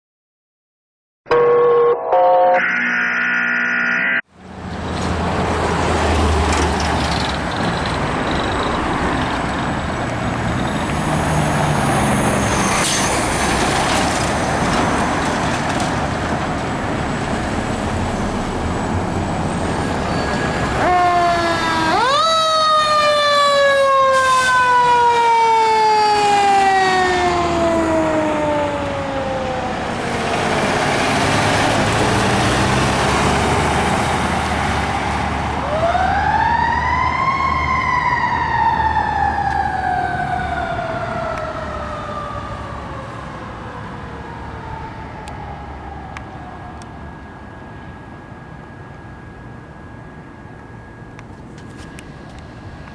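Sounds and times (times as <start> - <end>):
siren rising and falling: 1.3 - 4.3, 17.3 - 52.9
road and engine rumble: 4.2 - 52.9.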